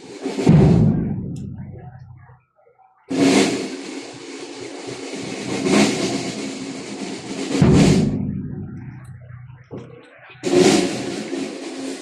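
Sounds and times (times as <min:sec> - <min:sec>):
bass drum strikes: 0:00.5 - 0:02.0, 0:07.6 - 0:09.7
held low notes: 0:00.6 - 0:02.3, 0:07.6 - 0:10.1.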